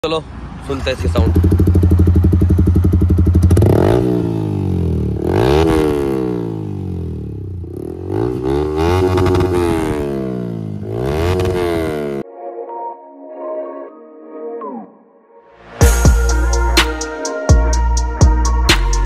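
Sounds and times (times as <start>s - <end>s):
motorcycle engine revving: 0.7s - 12.2s.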